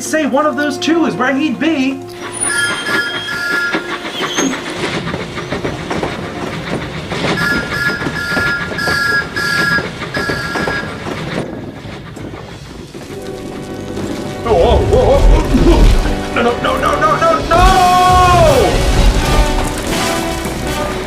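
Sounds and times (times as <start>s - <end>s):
steam locomotive chuffing: 0.2s - 21.0s
two-note whistle toots: 2.1s - 4.6s.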